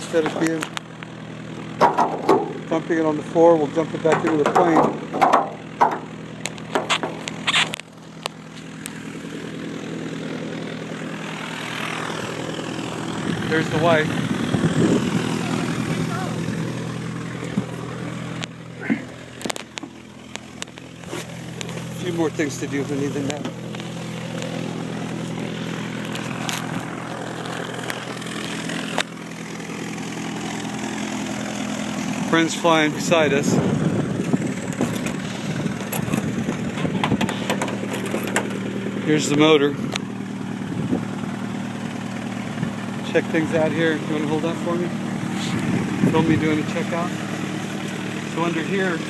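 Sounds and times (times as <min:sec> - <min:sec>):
propeller aircraft engine: 0:00.0 - 0:49.0
sharp clicks and knocks: 0:01.8 - 0:02.7, 0:04.0 - 0:08.9, 0:19.4 - 0:20.9, 0:35.8 - 0:38.6.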